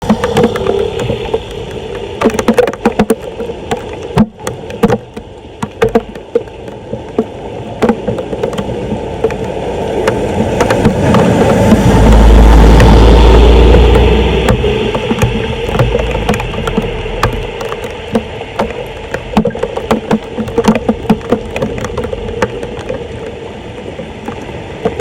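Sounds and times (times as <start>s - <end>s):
sharp knocks and clatter: 0.0s - 23.0s
steady noise: 7.1s - 25.0s
loud low rumble: 11.0s - 18.4s.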